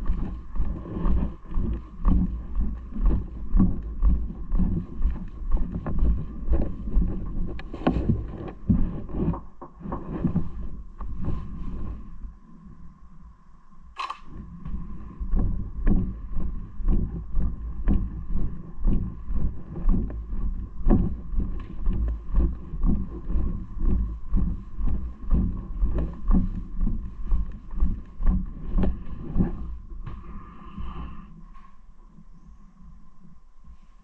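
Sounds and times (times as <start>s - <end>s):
wind rumbling on microphone: 0.0s - 34.0s.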